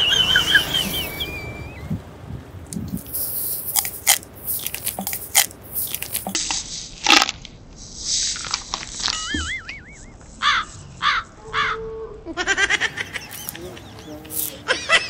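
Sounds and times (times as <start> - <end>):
person crunching snack food: 3.0 - 7.5, 8.2 - 9.3.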